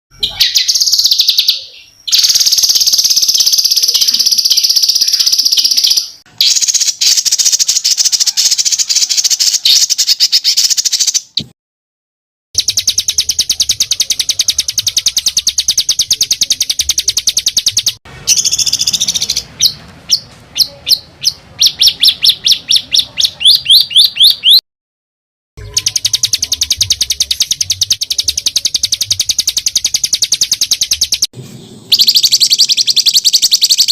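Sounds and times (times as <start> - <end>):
songbird trilling: 0.2 - 11.4, 12.6 - 24.6, 25.6 - 31.3, 31.9 - 33.9
bird sharp rising notes: 25.6 - 33.9.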